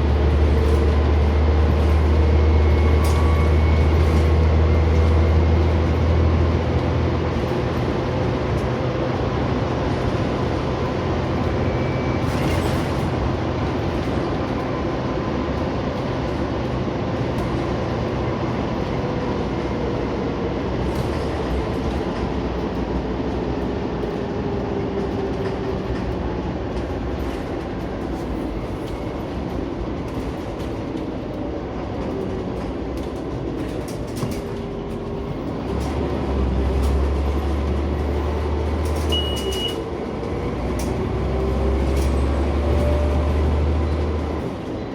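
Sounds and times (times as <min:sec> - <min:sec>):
bus diesel engine drone: 0:00.0 - 0:44.9
brief high beep: 0:39.1 - 0:39.8.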